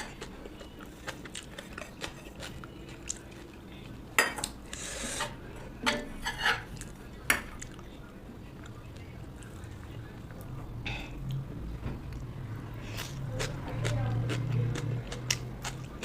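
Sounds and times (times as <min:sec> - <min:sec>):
cutlery and dishes clinking: 0:04.2 - 0:07.6
utensil scraping plate: 0:04.7 - 0:06.7.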